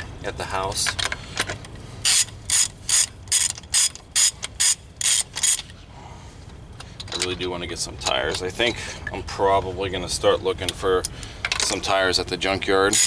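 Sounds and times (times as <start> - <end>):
hand ratchet clicking: 2.1 - 5.7.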